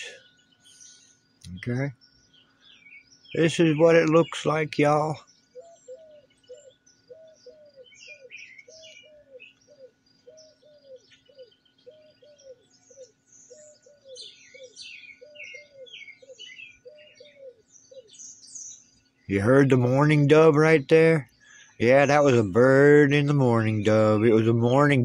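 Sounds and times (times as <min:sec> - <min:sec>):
songbirds chirping: 0:00.0 - 0:25.0
dove cooing: 0:03.4 - 0:18.2.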